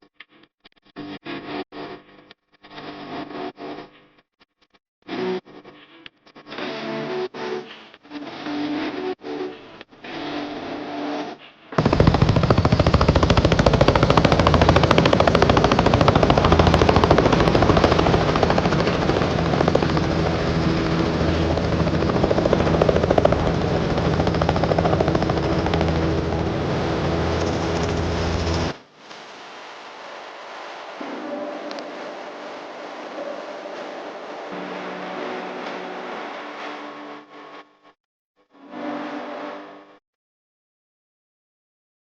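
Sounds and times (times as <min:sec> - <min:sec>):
helicopter engine hum: 0:11.8 - 0:28.8
helicopter rotor chopping: 0:11.8 - 0:28.8.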